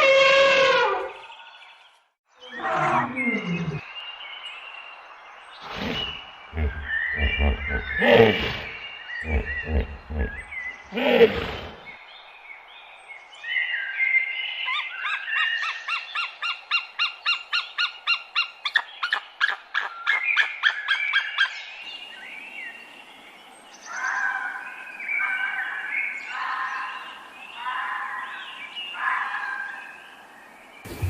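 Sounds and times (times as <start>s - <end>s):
bird singing repeated notes: 5.6s - 11.9s.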